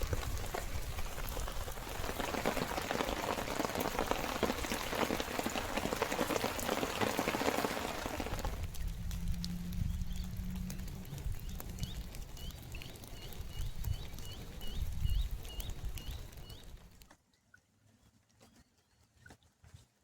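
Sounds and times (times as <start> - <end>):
low wind rumble: 0.0 - 5.7, 7.7 - 17.0
rain dripping and pattering: 0.0 - 17.1
bird whistling rising notes: 8.8 - 16.7.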